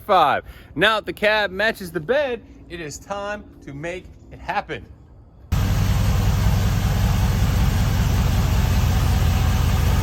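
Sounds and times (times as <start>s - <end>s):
truck engine idling: 5.5s - 10.0s.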